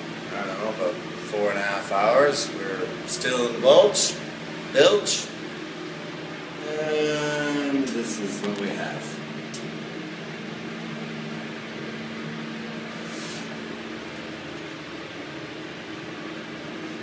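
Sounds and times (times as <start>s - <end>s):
machine hum: 0.0s - 17.0s
short hiss: 13.0s - 13.5s.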